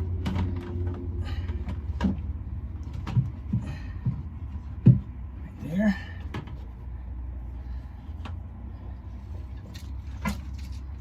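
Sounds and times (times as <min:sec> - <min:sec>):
handling knocks and clatters: 0:00.0 - 0:05.5
oil pump humming: 0:00.0 - 0:11.0.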